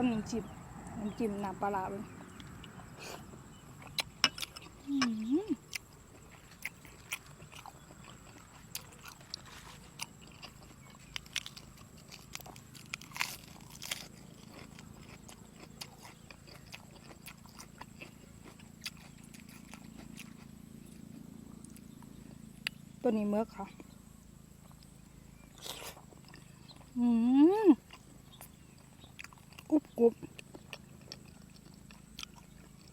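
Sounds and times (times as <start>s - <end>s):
biting and chewing: 2.0s - 23.0s, 23.6s - 32.9s
person humming: 4.9s - 5.6s.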